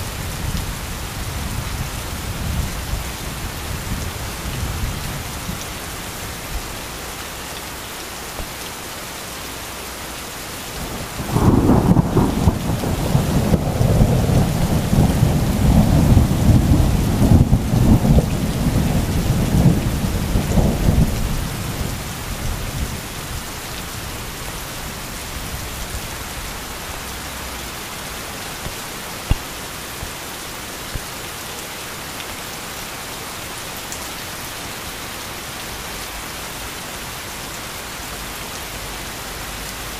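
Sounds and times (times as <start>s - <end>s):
heavy rain: 0.0s - 39.9s
thunder rumbling: 10.9s - 23.0s.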